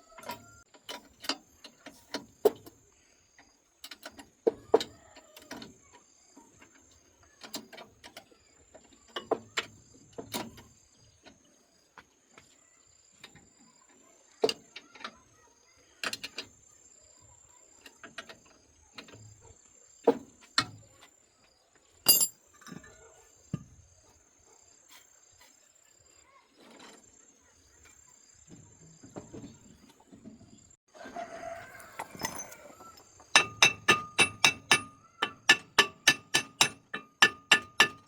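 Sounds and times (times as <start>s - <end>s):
hand tools clinking on metal: 22.1s - 22.9s, 31.8s - 38.0s.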